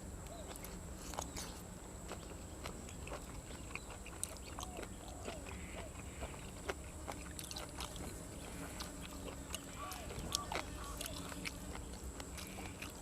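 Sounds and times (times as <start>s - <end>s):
chewing and crunching food: 0.0s - 13.0s
animal calls: 3.6s - 13.0s.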